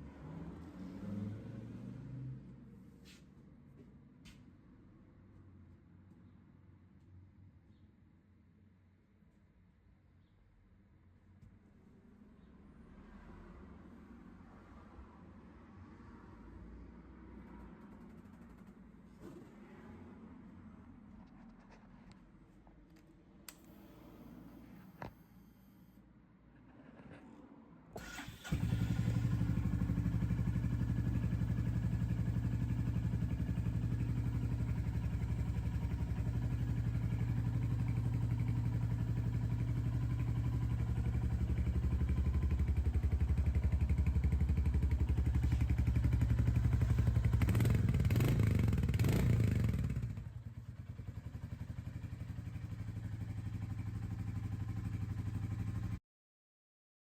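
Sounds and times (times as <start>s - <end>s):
motorcycle engine idling: 28.0s - 56.0s.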